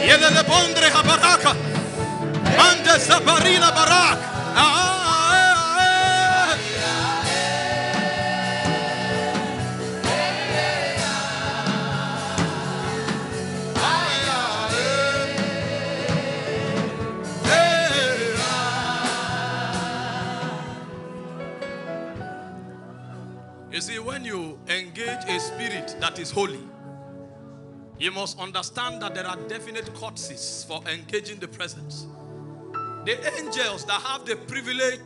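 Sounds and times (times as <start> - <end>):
gospel worship singing: 0.0 - 22.2
instrumental backing: 0.0 - 35.0.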